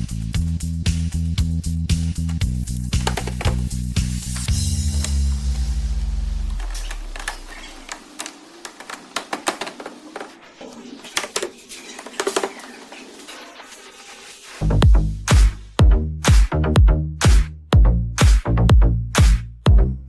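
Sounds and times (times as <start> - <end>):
music: 0.0 - 7.4, 13.0 - 20.0.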